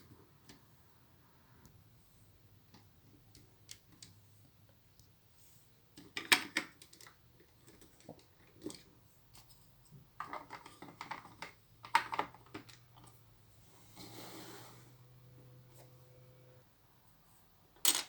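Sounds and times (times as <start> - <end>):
plastic bricks clicking and rattling: 10.2 - 13.2.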